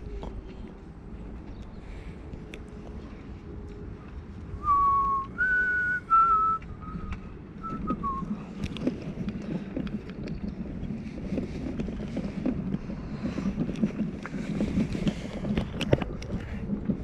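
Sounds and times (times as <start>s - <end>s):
person whistling a tune: 4.6s - 8.3s.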